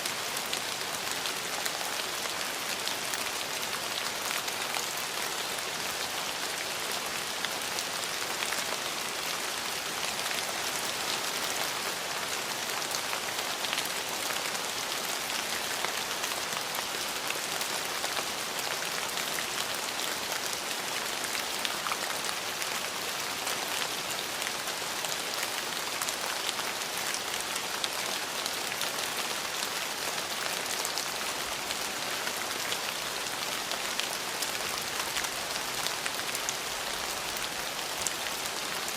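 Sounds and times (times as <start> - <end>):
rain on hard surfaces: 0.0 - 38.9.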